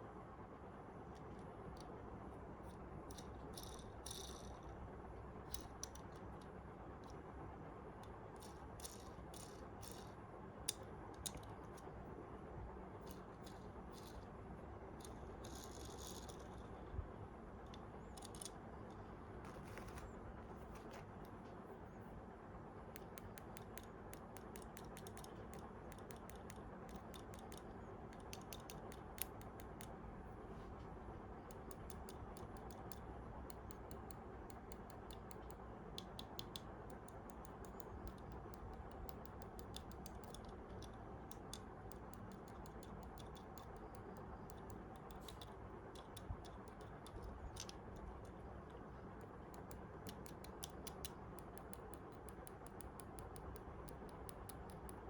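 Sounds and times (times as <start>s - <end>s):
low steady hum: 0.0s - 55.0s
small clicks and taps: 5.5s - 7.2s, 8.0s - 11.9s, 17.6s - 21.9s, 22.9s - 30.0s, 30.8s - 55.0s.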